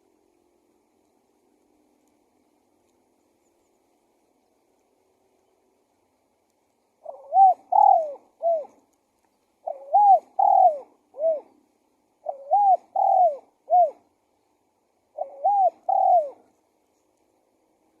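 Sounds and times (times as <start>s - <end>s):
dove cooing: 7.0s - 8.9s, 9.6s - 14.1s, 15.1s - 16.6s.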